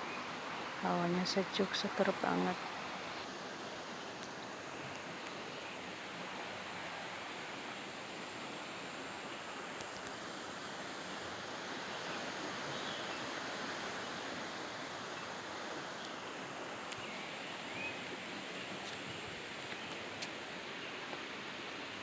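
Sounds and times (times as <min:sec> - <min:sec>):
flowing water: 0:00.0 - 0:22.0
faint clicks: 0:09.7 - 0:10.2, 0:16.8 - 0:17.2.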